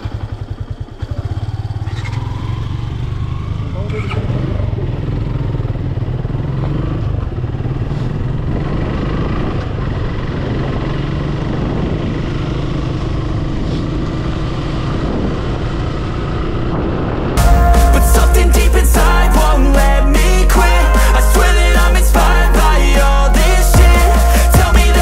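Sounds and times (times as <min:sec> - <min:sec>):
motorcycle engine running: 0:00.0 - 0:25.0
wind noise on microphone: 0:08.1 - 0:17.4
music: 0:17.4 - 0:25.0.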